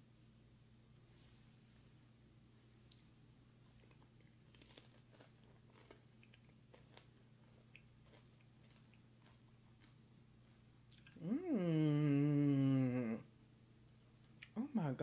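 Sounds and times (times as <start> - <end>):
low steady hum: 0.0 - 15.0
faint crunchy chewing: 2.8 - 11.3.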